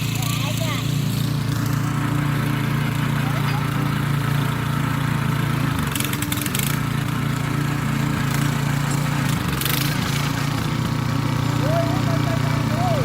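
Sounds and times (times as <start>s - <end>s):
tiller petrol engine running: 0.0s - 13.0s.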